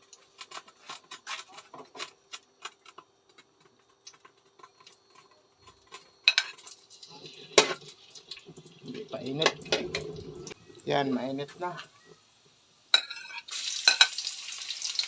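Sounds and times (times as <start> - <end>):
utensils clattering: 0.4 - 8.0.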